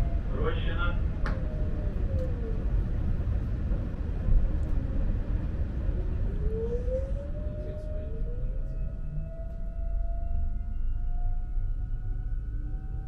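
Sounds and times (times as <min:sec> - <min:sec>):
train running gear rumbling: 0:00.0 - 0:06.4.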